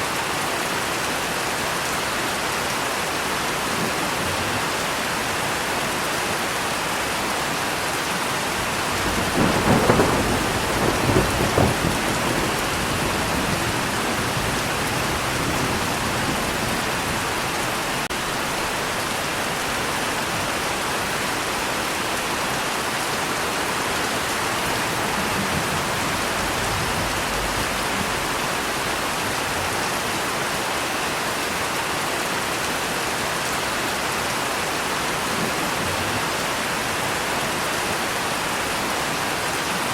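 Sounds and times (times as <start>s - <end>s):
steady rain falling: 0.0s - 39.9s
thunder rolling: 8.6s - 18.1s, 24.6s - 29.7s.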